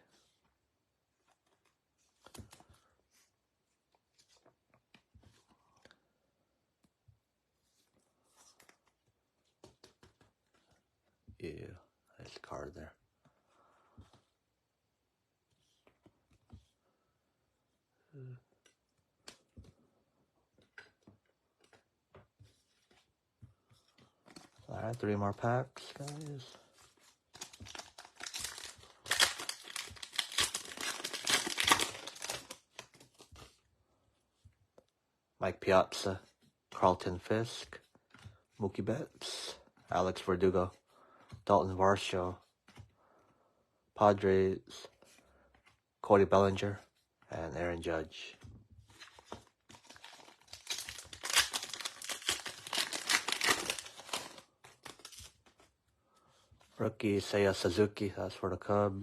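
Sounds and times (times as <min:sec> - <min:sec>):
foil wrapper crinkling: 0:27.4 - 0:33.2, 0:49.7 - 0:55.4.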